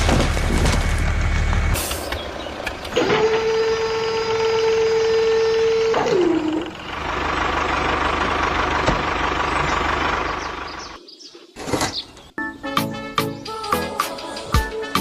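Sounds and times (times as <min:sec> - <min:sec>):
engine whine: 0:00.0 - 0:11.0
rough low-pulsing engine: 0:00.0 - 0:11.0.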